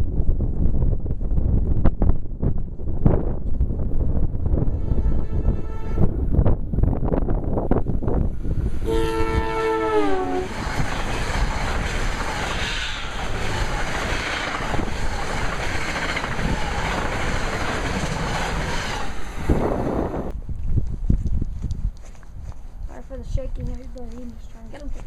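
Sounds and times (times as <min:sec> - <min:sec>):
train rushing by on rails: 0:00.0 - 0:20.3
train chord horn: 0:04.7 - 0:06.1, 0:08.8 - 0:10.5.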